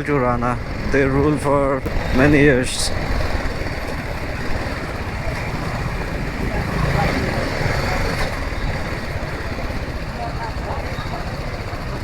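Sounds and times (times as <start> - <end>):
motorcycle engine running: 0.0 - 12.0
road noise: 0.0 - 12.0.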